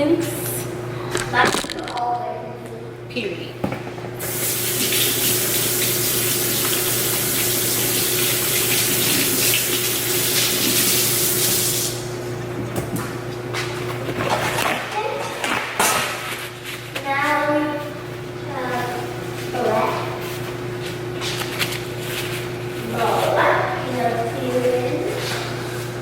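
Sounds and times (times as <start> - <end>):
water running from sink tap: 4.2 - 12.1.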